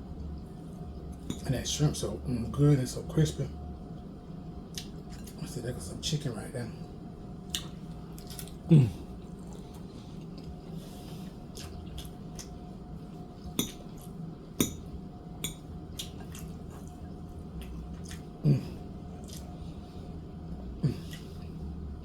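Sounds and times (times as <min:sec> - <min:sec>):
wet chewing and mouth smacks: 0:04.7 - 0:05.4, 0:07.5 - 0:10.8, 0:11.4 - 0:12.6, 0:15.4 - 0:18.4, 0:19.2 - 0:19.6.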